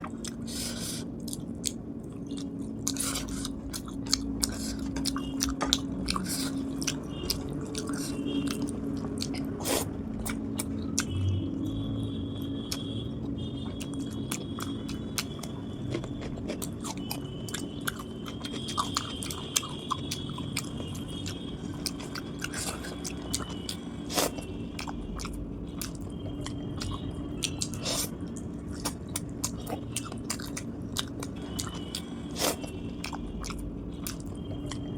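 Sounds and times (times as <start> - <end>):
wet chewing and biting: 0.1 - 11.2, 13.6 - 34.9.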